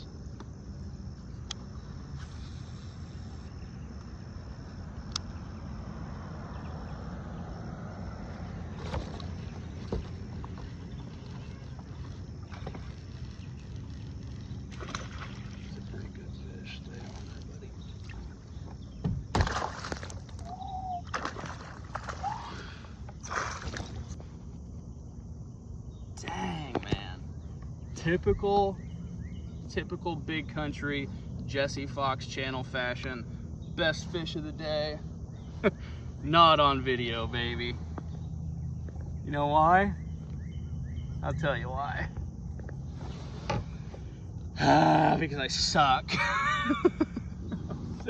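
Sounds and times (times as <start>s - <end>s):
low rumble of wind or water: 0.0s - 44.6s, 45.2s - 48.0s
insect trill: 0.0s - 48.0s
water splashing around a kayak: 8.3s - 24.4s.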